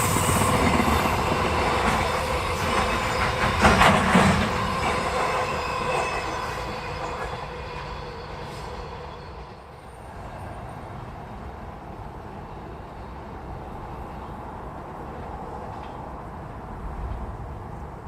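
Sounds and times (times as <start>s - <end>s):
train passing: 0.0s - 18.0s.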